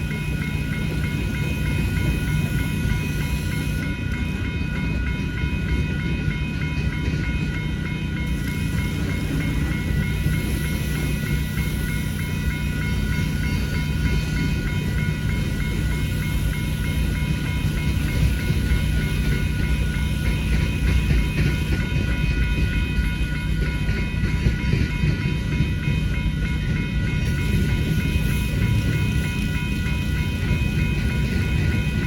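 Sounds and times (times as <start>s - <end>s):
crossing bell ringing: 0.0s - 32.0s
freight train rumbling: 0.0s - 32.0s.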